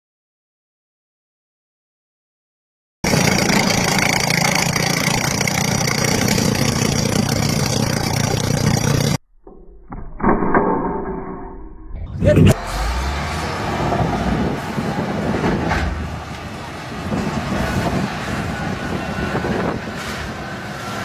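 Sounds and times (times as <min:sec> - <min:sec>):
loud machine running: 0:03.0 - 0:09.2, 0:12.4 - 0:21.0.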